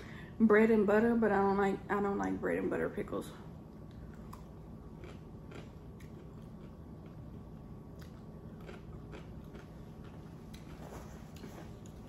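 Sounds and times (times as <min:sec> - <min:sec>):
chewing a pickle: 0:03.7 - 0:12.0.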